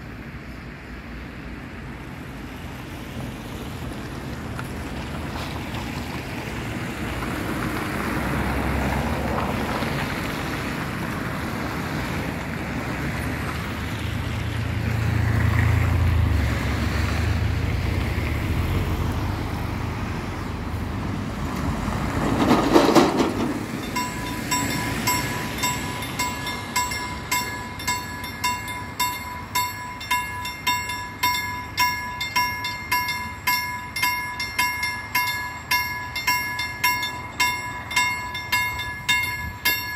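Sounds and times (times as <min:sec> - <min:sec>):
freight train rumbling past: 0:00.0 - 0:39.9
level crossing bell ringing: 0:23.7 - 0:39.9.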